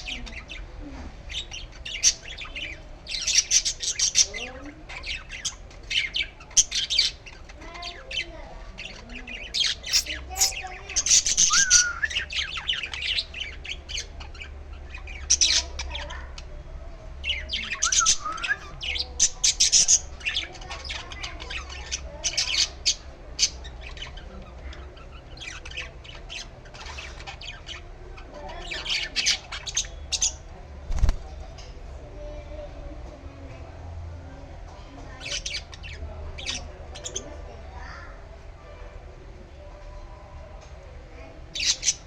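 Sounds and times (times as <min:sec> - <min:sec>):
young bird squawking: 0:09.6 - 0:12.4.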